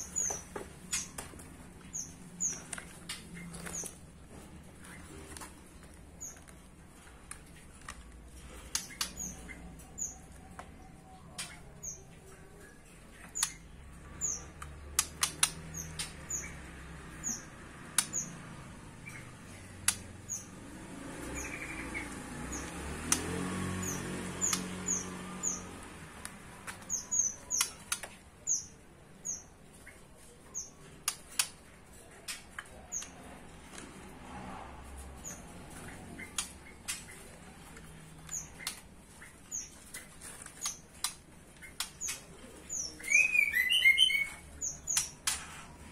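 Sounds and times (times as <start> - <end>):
songbirds chirping: 0.0 - 45.9
sharp clicks and taps: 14.4 - 16.3, 17.8 - 18.4, 19.8 - 20.3, 22.0 - 23.4, 30.8 - 33.9, 35.4 - 42.4.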